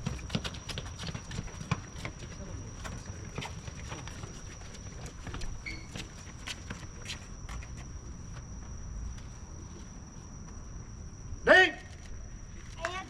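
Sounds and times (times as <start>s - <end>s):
footsteps: 0.0s - 10.6s.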